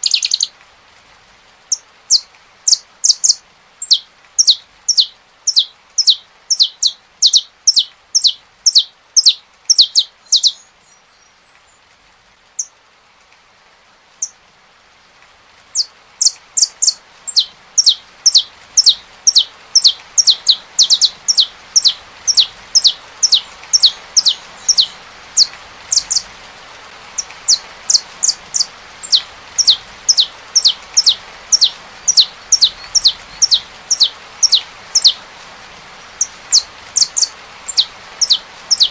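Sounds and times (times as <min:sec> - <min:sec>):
finch singing sharp notes: 0:00.0 - 0:00.5, 0:01.7 - 0:10.7, 0:15.8 - 0:26.3, 0:27.2 - 0:35.2, 0:36.1 - 0:38.9
rain hissing: 0:00.0 - 0:38.9.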